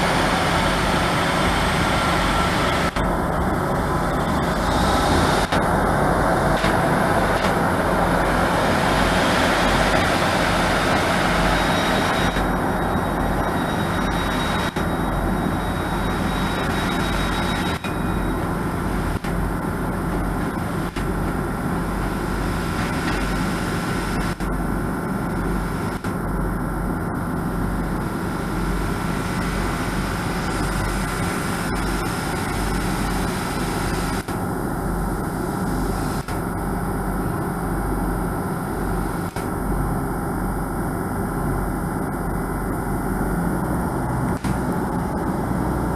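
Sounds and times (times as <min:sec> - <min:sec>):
train engine humming: 0:00.0 - 0:24.3
faint high whine: 0:00.0 - 0:45.9.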